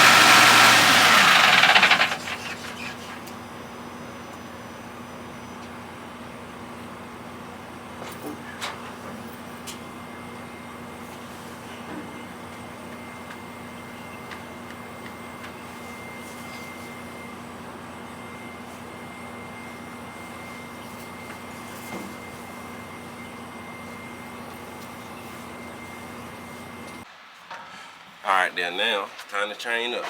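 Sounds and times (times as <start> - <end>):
engine idling with high whine: 0.0 - 27.0.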